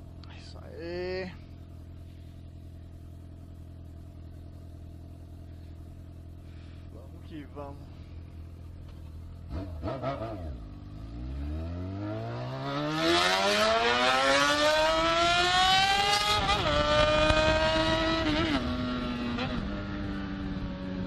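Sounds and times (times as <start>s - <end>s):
motorcycle engine accelerating: 7.8s - 21.0s
wind noise: 15.8s - 21.0s.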